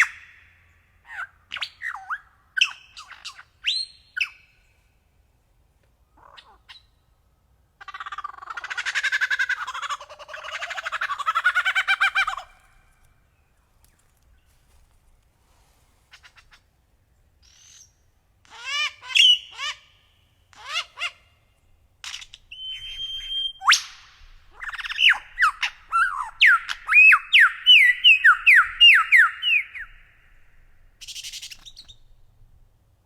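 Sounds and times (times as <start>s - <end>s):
bird calling and singing: 22.0s - 32.2s.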